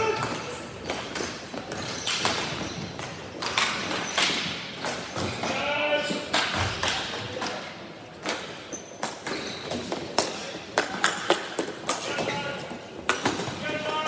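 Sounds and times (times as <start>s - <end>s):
person shouting: 0.0s - 0.5s.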